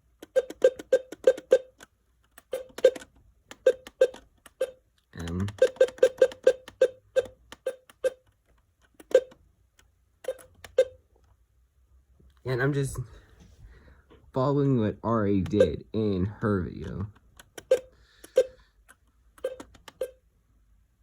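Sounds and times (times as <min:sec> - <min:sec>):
keypad beeps: 0:00.2 - 0:01.8, 0:02.4 - 0:08.2, 0:09.0 - 0:09.4, 0:10.2 - 0:11.0, 0:15.4 - 0:15.8, 0:17.6 - 0:18.5, 0:19.4 - 0:20.2.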